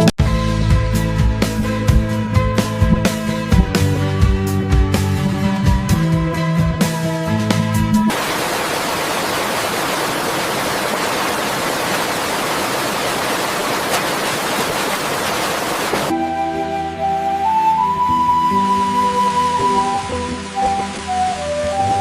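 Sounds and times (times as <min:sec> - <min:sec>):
music: 0:00.0 - 0:08.1, 0:16.1 - 0:22.0
steady rushing hiss: 0:08.1 - 0:16.1.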